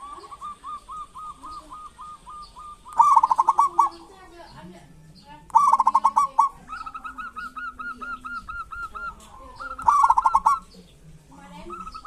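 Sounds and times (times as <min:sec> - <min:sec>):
doves calling: 0:00.0 - 0:12.0.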